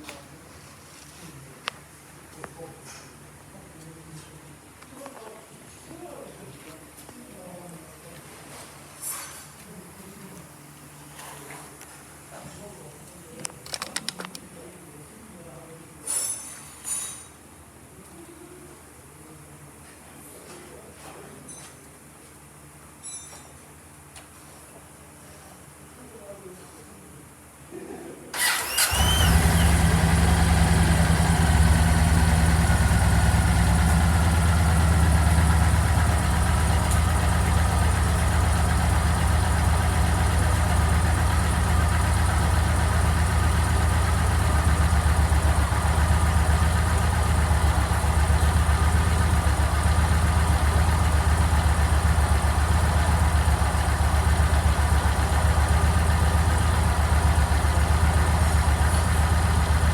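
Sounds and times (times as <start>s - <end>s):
motorcycle engine idling: 28.4s - 59.9s.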